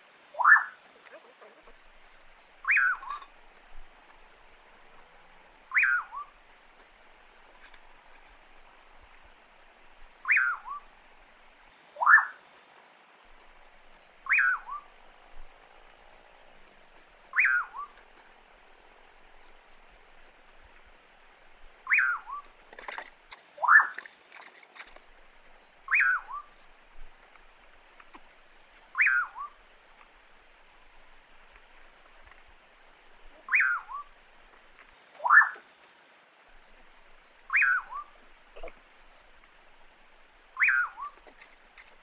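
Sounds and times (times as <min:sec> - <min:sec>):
faint background hiss: 0:00.0 - 0:42.0
bird whistled call: 0:00.3 - 0:01.4, 0:02.6 - 0:03.2, 0:05.7 - 0:06.4, 0:10.2 - 0:10.9, 0:11.9 - 0:12.6, 0:14.2 - 0:14.9, 0:17.3 - 0:18.0, 0:21.8 - 0:22.5, 0:23.5 - 0:24.1, 0:25.9 - 0:26.5, 0:29.0 - 0:29.6, 0:33.3 - 0:34.1, 0:35.0 - 0:36.1, 0:37.5 - 0:38.2, 0:40.6 - 0:41.2
second bird call: 0:35.0 - 0:36.0.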